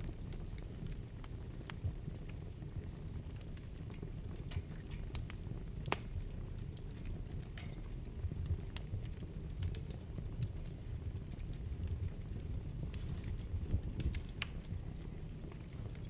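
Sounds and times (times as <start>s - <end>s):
burning wood crackles and pops: 0.0s - 16.0s
low rumble of flames: 0.0s - 16.0s.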